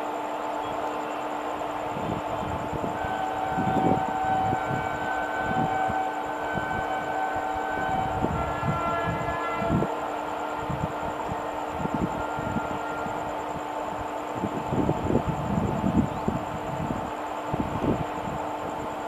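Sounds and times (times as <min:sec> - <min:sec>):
steady whining tones: 0:00.0 - 0:19.0.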